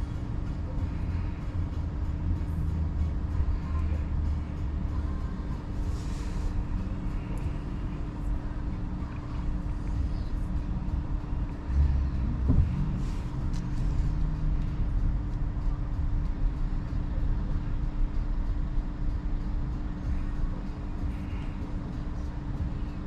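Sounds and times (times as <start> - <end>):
electric car hum: 0.0 - 23.0
tyres rumbling on road: 0.0 - 23.0
low bump: 11.7 - 16.3.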